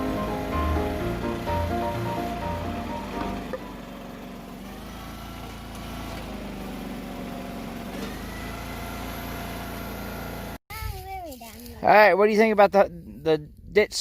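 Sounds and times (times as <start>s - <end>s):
small gasoline engine running: 0.0s - 10.6s.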